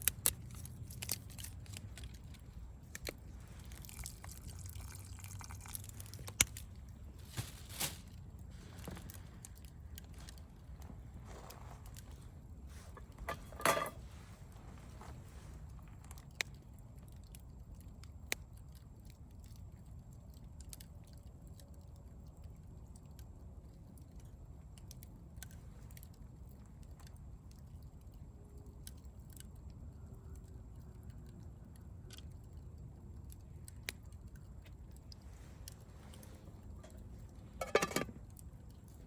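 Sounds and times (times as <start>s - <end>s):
campfire crackling and popping: 0.0s - 13.2s, 15.6s - 39.0s
low steady rumble: 0.0s - 39.0s.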